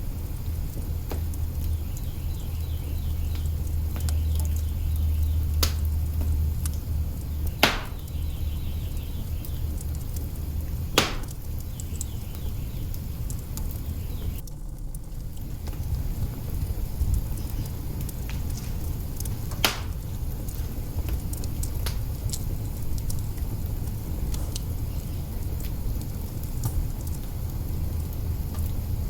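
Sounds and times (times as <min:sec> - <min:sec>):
burning logs popping: 0:00.0 - 0:29.0
wood fire crackling: 0:00.0 - 0:29.0.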